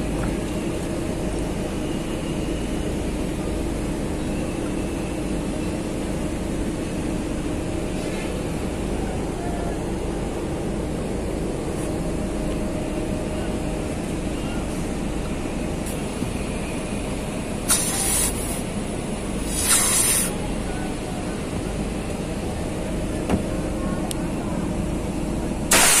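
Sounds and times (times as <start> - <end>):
steady background rumble: 0.0 - 26.0
compressed gas hissing blasts: 17.7 - 18.6, 19.4 - 20.3, 25.7 - 26.0.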